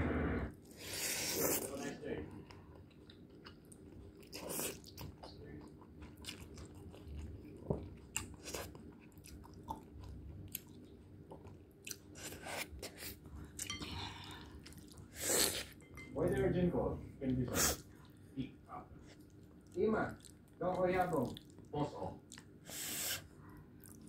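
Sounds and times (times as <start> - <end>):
person chewing noodles: 2.4 - 15.8, 19.0 - 20.6, 21.2 - 24.0.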